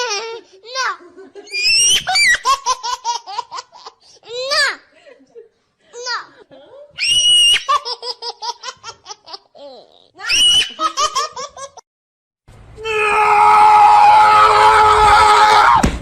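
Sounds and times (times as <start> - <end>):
high-pitched laughter: 0.0 - 4.0, 5.9 - 11.8
long loud cry: 12.8 - 15.8.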